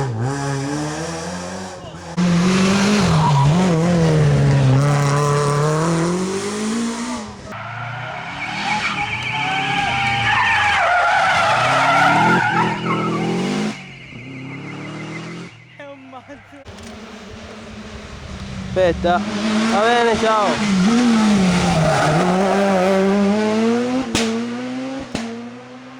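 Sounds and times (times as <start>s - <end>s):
rally car engine revving: 0.0s - 25.9s
tyres squealing: 7.4s - 23.0s.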